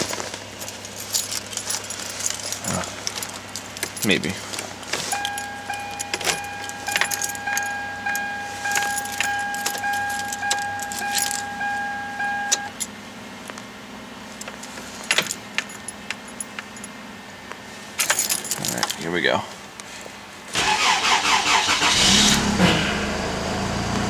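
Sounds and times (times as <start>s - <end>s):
car keys jangling in ignition: 0.0s - 13.0s, 14.3s - 17.0s, 18.0s - 19.3s, 20.6s - 22.4s
electronic warning chime: 5.1s - 12.8s.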